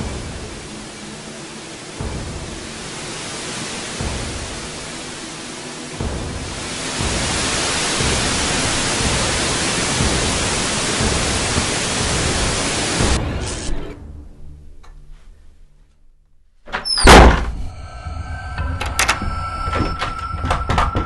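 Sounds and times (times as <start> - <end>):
steady hiss of noise: 0.0 - 13.7.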